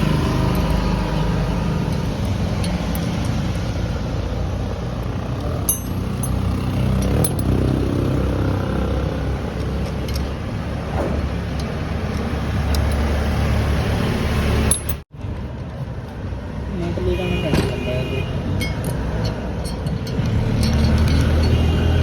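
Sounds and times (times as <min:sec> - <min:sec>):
vehicle engine rumbling: 0:00.0 - 0:22.0
light clicks and clinks: 0:05.6 - 0:07.8, 0:18.6 - 0:21.8.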